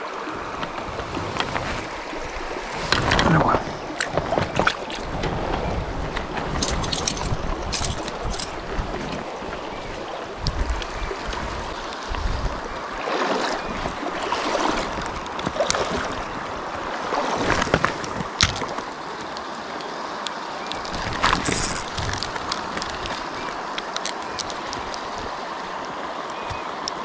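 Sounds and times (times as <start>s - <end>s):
flowing river water: 0.0s - 27.0s.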